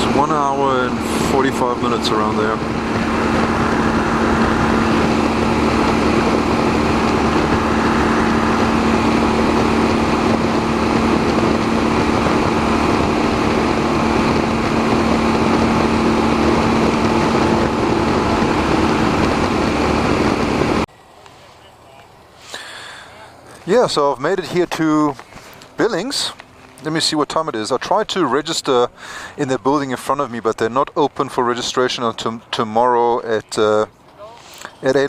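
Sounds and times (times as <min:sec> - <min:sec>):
motorcycle engine drone: 0:00.0 - 0:21.1
wind noise rushing: 0:00.1 - 0:20.8.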